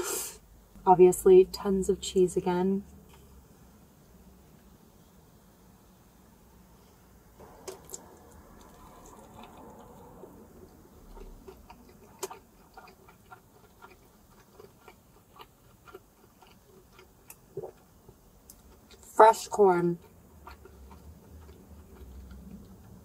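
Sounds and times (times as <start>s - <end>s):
person chewing: 7.4s - 19.1s, 20.0s - 23.0s.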